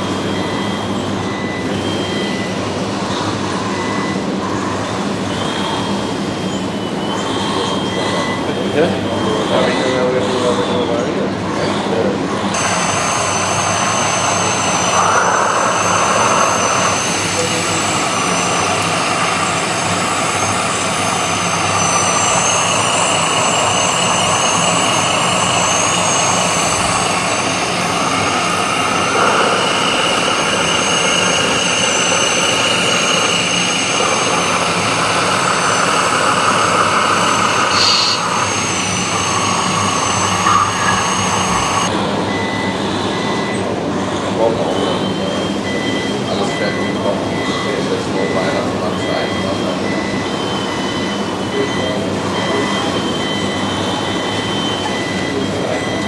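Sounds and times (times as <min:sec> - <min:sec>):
electric motors high whine: 0:00.0 - 0:56.0
lower motor whining: 0:12.4 - 0:42.4.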